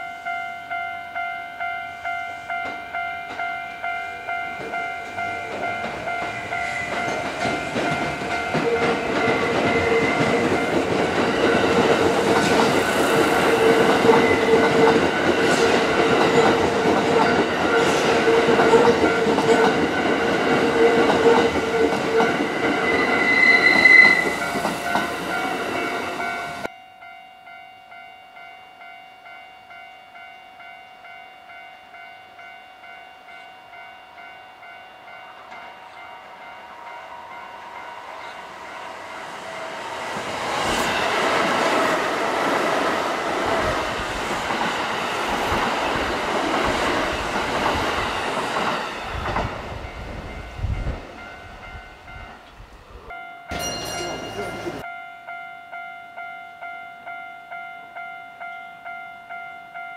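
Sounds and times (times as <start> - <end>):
level crossing warning bell: 0.0 - 52.5, 53.1 - 59.9
train rumble and wheel clatter: 2.5 - 26.7, 35.3 - 54.9.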